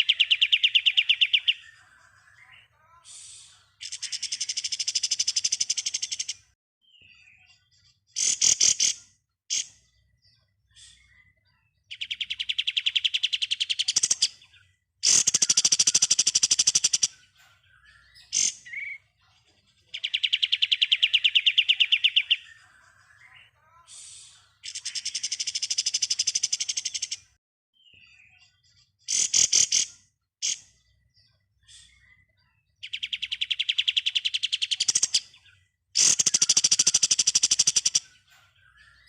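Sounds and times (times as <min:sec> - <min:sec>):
songbird machine-gun trill: 0:15.0 - 0:17.1, 0:36.0 - 0:38.0.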